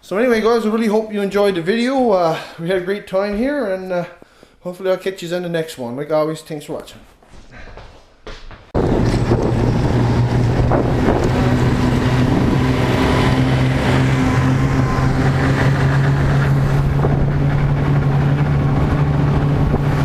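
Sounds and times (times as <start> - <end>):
wind on the microphone: 8.8 - 13.2, 16.2 - 20.0
snowmobile engine running: 8.8 - 20.0.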